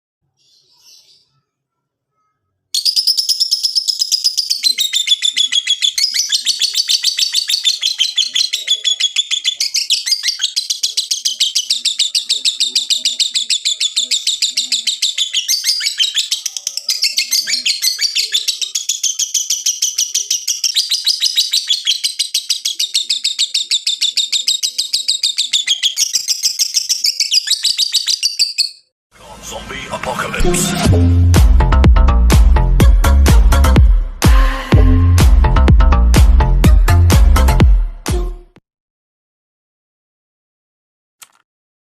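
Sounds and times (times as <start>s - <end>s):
lovebird fast high chatter: 2.8s - 28.7s.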